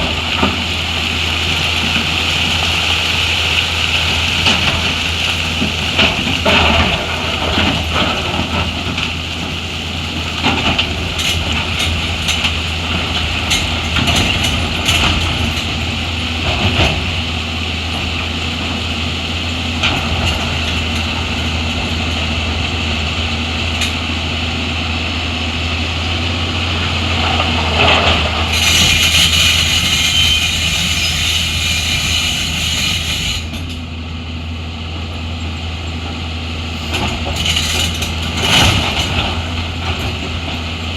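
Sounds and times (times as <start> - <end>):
heavy machine engine running: 0.0 - 40.9.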